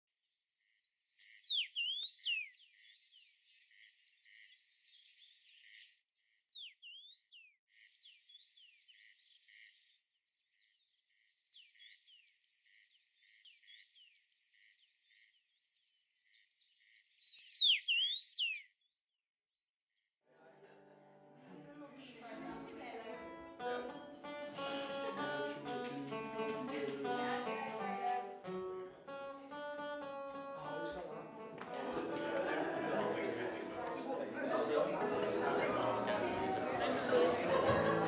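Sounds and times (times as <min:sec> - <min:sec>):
birds chirping: 0:01.2 - 0:10.3, 0:10.9 - 0:18.8.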